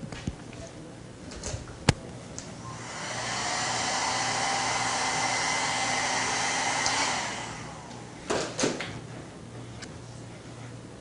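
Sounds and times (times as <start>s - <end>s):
hair dryer blowing: 2.6s - 8.2s.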